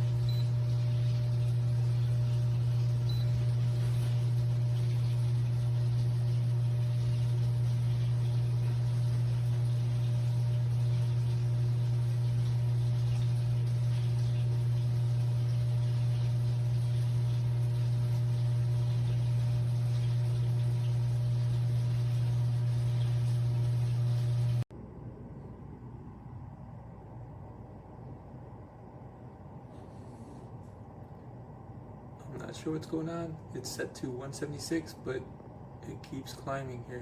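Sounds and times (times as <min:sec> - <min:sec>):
electric kettle humming: 0:00.0 - 0:24.7.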